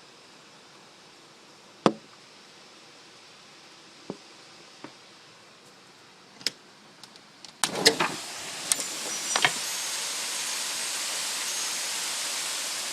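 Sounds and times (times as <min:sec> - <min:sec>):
heavy hailstorm hiss: 0:06.1 - 0:12.9.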